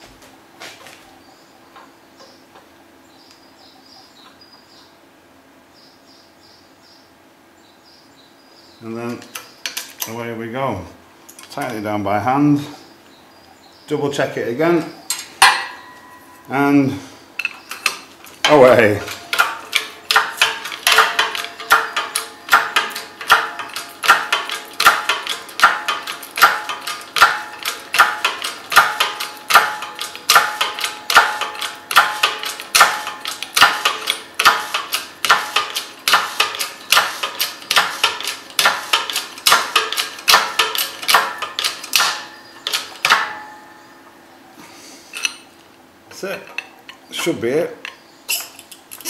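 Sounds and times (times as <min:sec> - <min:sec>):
hydraulic jack clicking and clanking: 0:17.4 - 0:43.6, 0:45.1 - 0:45.5, 0:46.4 - 0:49.0.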